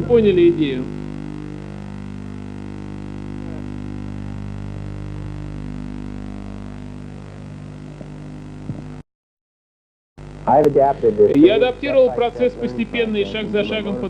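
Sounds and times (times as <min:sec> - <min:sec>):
low droning hum: 0:00.0 - 0:09.0.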